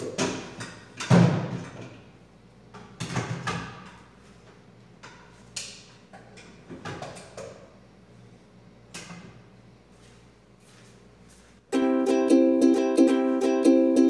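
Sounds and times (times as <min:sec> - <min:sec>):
music with plucked strings: 0:11.7 - 0:14.0.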